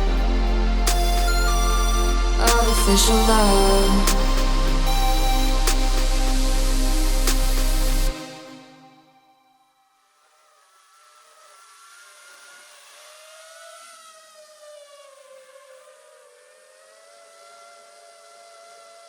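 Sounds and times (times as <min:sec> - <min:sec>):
quadcopter motors whining: 0:10.1 - 0:19.0.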